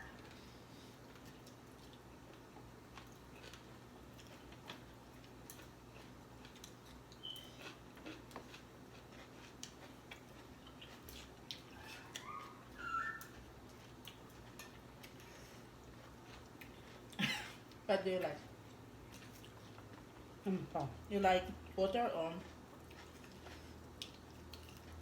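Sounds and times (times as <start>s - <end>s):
person chewing food: 0.0s - 17.8s, 18.5s - 20.4s, 22.4s - 25.0s
high-pitched cry: 11.8s - 13.2s.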